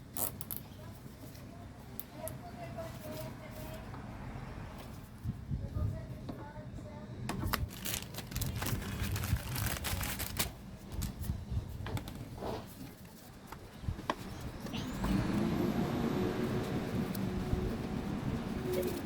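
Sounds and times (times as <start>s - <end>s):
low background rumble: 13.0s - 19.0s.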